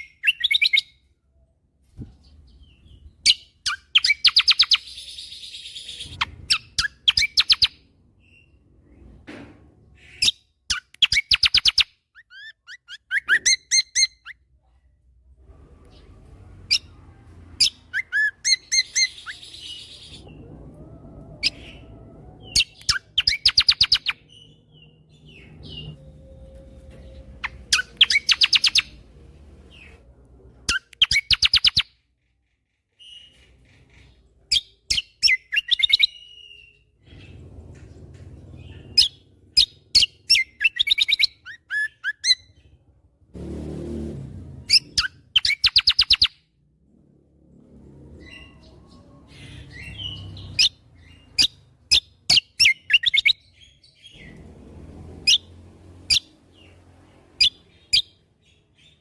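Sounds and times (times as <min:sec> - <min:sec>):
low rumble: 0:19.4 - 0:23.2.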